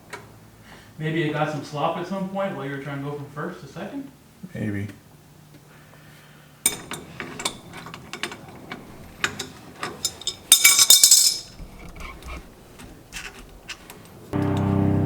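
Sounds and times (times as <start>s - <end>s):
metal tools clinking: 6.7s - 12.0s
rattling clatter: 6.7s - 14.3s.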